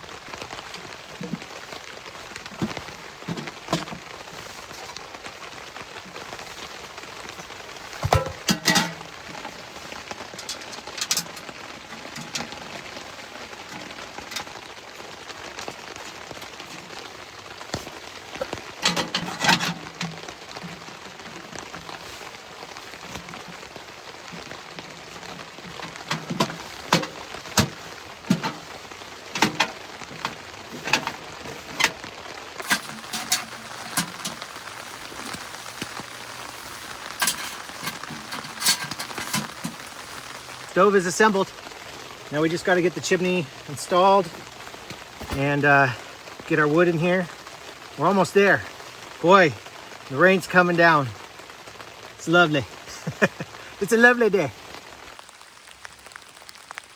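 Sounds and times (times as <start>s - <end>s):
rain on tent fabric: 0.0s - 56.9s
metal stove parts clanking: 8.1s - 9.0s, 32.6s - 40.7s.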